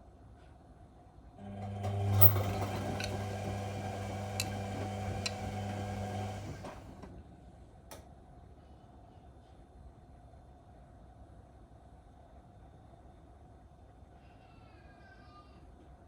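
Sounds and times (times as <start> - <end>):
washing machine humming: 1.4 - 7.5
washing machine clicks: 1.6 - 6.9.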